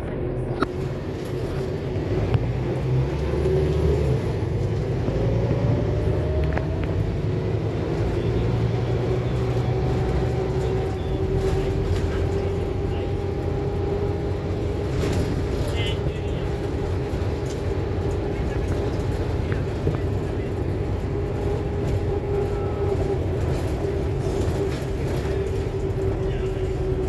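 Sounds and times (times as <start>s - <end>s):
bus diesel engine running: 0.0s - 27.0s
drivetrain whine: 0.0s - 27.0s.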